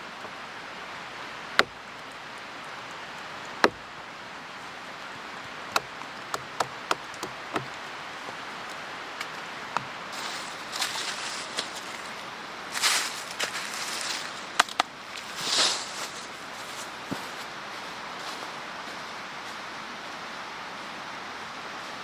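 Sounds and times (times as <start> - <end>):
mountain stream rushing: 0.0 - 22.0
axe chopping firewood: 1.4 - 1.8, 3.5 - 4.0, 5.7 - 7.8
rustling: 9.8 - 17.5.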